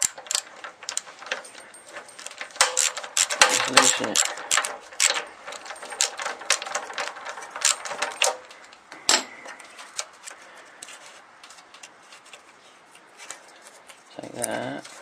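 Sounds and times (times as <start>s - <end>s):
ratchet clicking: 0.0s - 8.4s.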